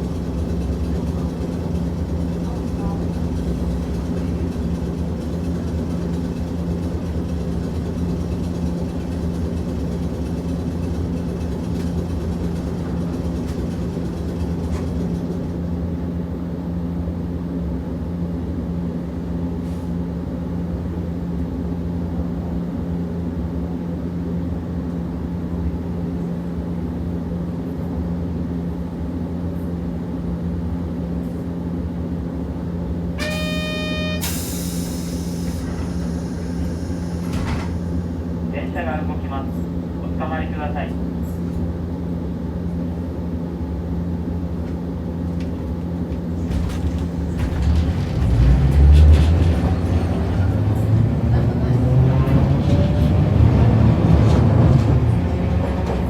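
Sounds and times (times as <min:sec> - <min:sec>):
tram running hum and rumble: 0:00.0 - 0:56.0
short electronic tone: 0:33.2 - 0:34.8.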